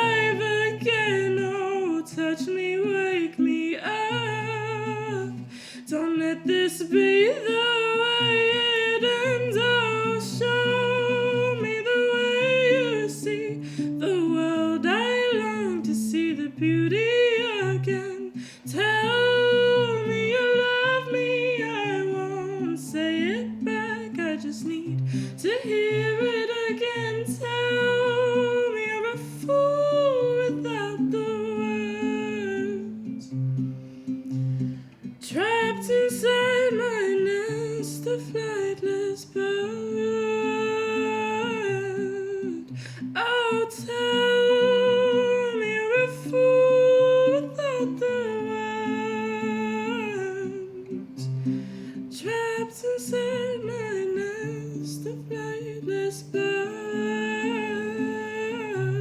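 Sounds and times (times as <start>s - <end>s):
plucked acoustic guitar: 0.0s - 59.0s.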